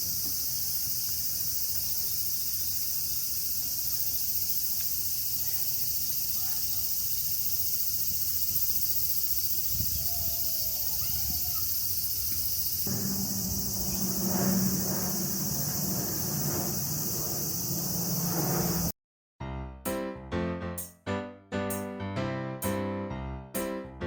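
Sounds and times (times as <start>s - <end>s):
high-pitched insect chorus: 0.0s - 18.9s.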